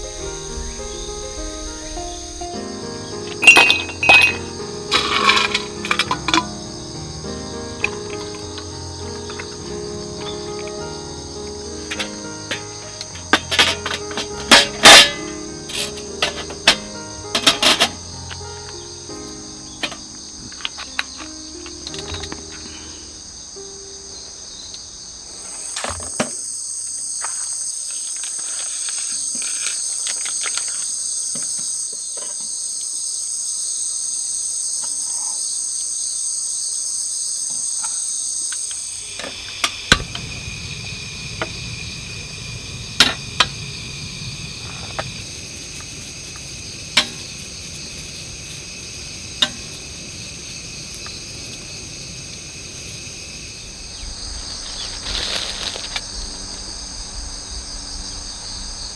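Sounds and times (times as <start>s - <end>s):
low background hiss: 0.0s - 25.5s, 38.9s - 58.9s
insects chirring: 0.0s - 58.9s.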